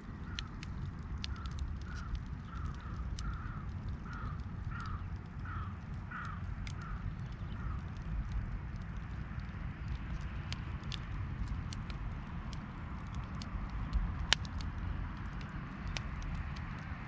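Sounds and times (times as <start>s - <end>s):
steady low rumble: 0.0s - 17.0s
crows cawing: 0.2s - 0.6s, 1.2s - 7.8s.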